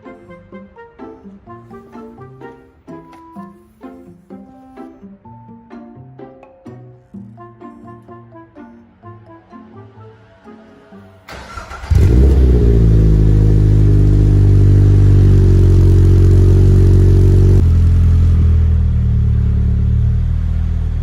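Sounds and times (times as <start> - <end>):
engine cranking: 11.3 - 17.6
car engine idling: 11.3 - 21.0.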